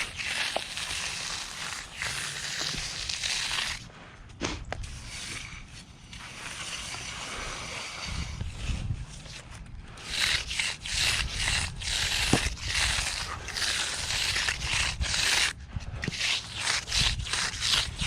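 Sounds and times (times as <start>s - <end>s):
float scraping wet concrete: 0.0s - 18.0s.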